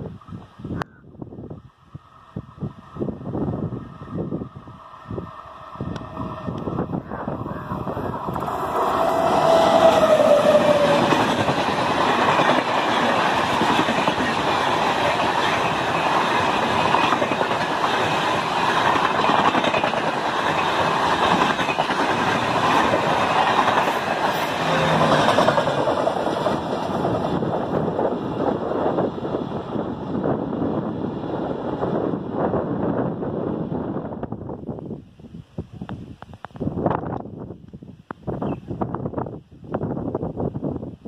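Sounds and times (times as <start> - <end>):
train wheels rushing on rail: 2.2 - 34.5.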